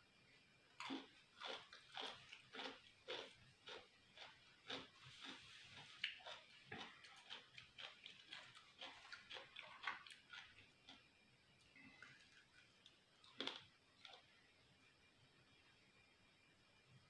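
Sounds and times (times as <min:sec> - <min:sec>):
person chewing food: 0:00.8 - 0:11.1, 0:11.8 - 0:14.3.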